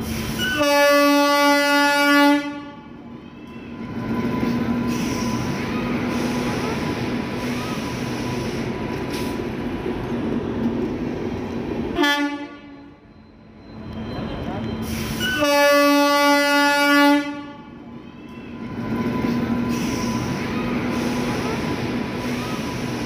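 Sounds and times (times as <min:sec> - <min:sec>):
train running on track: 0:00.0 - 0:23.0
train whistle blast: 0:00.4 - 0:02.8, 0:12.0 - 0:13.1, 0:14.8 - 0:17.7.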